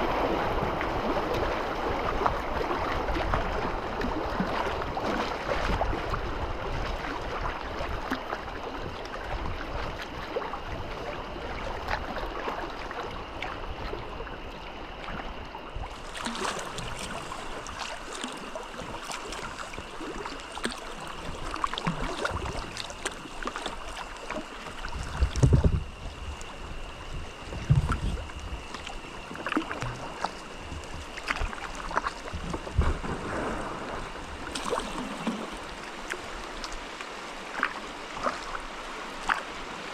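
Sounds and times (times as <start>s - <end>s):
river water flowing: 11.4s - 39.9s
small splashes and clicks: 15.9s - 25.7s, 27.7s - 32.9s, 34.4s - 38.6s, 39.2s - 39.6s.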